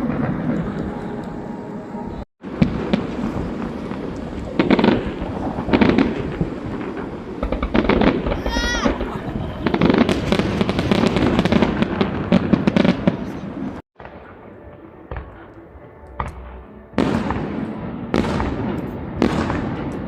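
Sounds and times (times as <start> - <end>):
fireworks crackling and banging: 0.0 - 1.3, 2.4 - 20.0
scattered firework pops: 2.6 - 13.4, 17.0 - 20.0.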